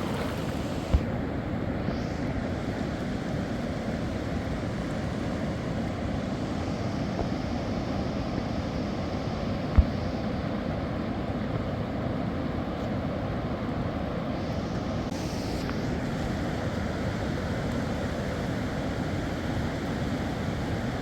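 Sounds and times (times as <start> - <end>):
rushing river: 0.0 - 1.1.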